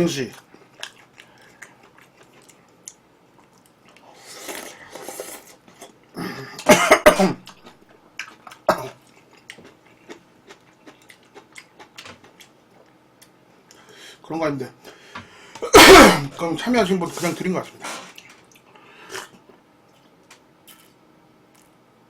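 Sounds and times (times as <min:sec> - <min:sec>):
chewing food: 0:00.3 - 0:06.0, 0:07.5 - 0:13.8, 0:18.1 - 0:21.7
person coughing hard: 0:06.2 - 0:07.5, 0:15.6 - 0:16.4.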